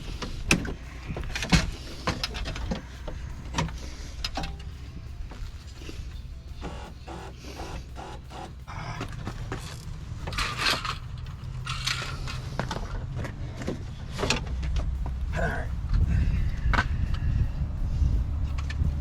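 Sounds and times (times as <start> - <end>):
clicks and rattles of parts: 0.0 - 6.0, 6.6 - 15.0
steady low rumble: 0.0 - 19.0.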